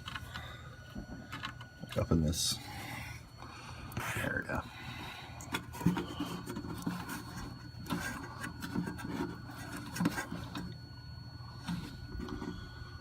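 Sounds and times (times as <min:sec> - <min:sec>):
steady low hum: 0:00.0 - 0:13.0
handling noise rubbing and scraping: 0:05.5 - 0:13.0.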